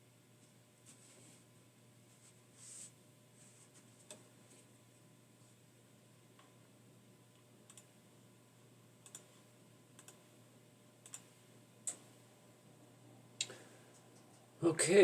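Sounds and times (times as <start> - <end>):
faint room hum: 0.0 - 15.0
computer key clicks: 7.7 - 7.9, 9.0 - 9.3, 10.0 - 10.2, 11.0 - 11.3.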